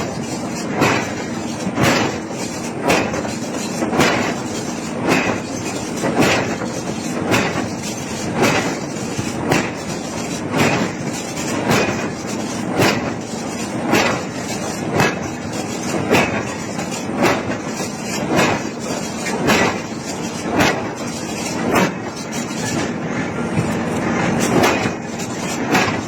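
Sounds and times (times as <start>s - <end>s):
machinery hum: 0.0s - 26.0s
hammer striking hot iron: 0.7s - 3.3s, 5.0s - 5.5s, 6.1s - 7.7s, 11.7s - 12.1s, 16.0s - 21.0s, 24.4s - 26.0s.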